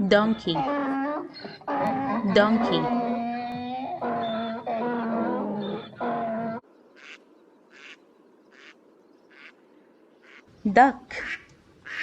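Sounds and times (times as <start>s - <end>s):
donkey braying: 0.0s - 7.2s
faint duck quacks: 7.0s - 9.6s, 10.2s - 10.5s, 11.1s - 12.0s.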